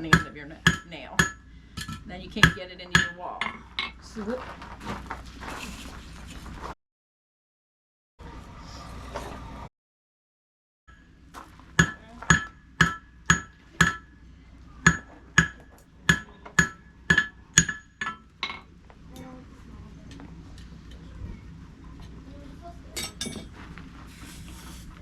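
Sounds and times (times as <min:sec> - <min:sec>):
hammer ringing on anvil: 0:00.0 - 0:03.7, 0:11.8 - 0:14.2, 0:14.8 - 0:18.7.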